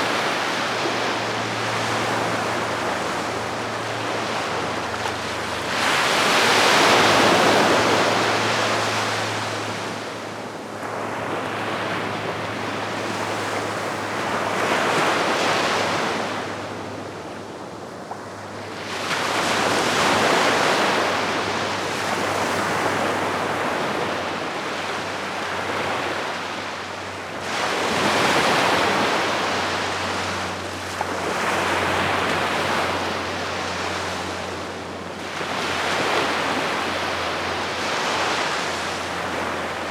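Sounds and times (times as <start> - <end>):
sea waves washing on shore: 18.8 - 39.9.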